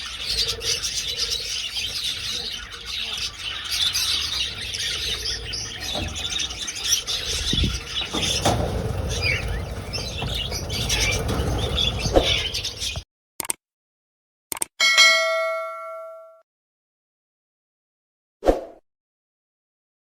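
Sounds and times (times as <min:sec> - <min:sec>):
budgerigars chattering: 0:00.0 - 0:13.0
wings flapping: 0:00.0 - 0:13.0
low thumps: 0:03.8 - 0:13.0.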